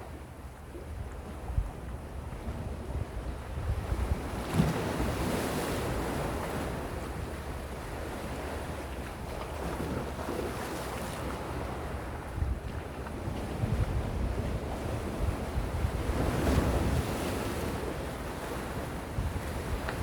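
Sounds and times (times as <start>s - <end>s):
wind rumbling on microphone: 0.7s - 7.8s, 11.9s - 20.0s.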